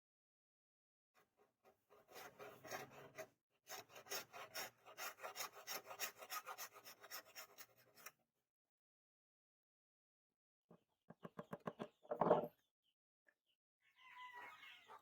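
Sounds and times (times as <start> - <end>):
hand file rasping: 1.9 - 8.2.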